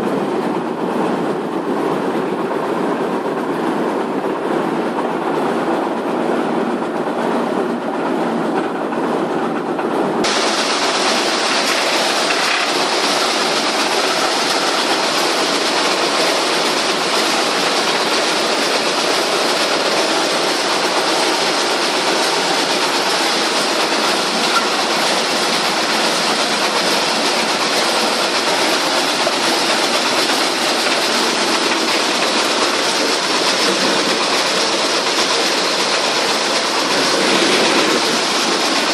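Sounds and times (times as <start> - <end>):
wood chipper running: 10.2 - 38.9.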